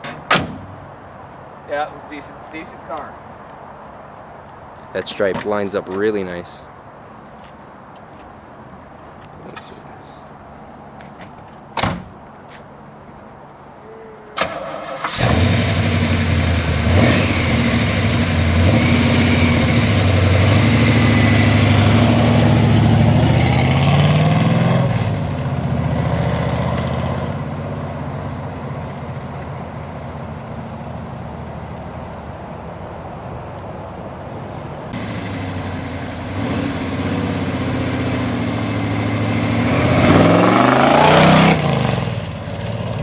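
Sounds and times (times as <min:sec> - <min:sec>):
thump: 0:00.0 - 0:00.8, 0:11.8 - 0:12.1
car engine starting and idling: 0:14.2 - 0:43.0.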